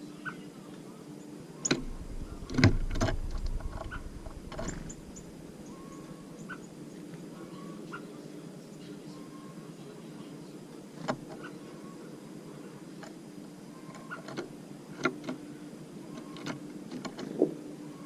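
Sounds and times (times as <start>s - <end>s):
faint high bird chirps: 1.2s - 10.7s.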